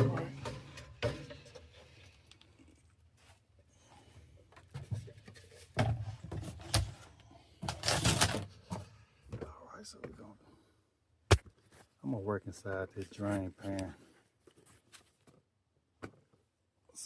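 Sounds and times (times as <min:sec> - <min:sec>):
tools knocking and clattering: 0:00.0 - 0:01.7.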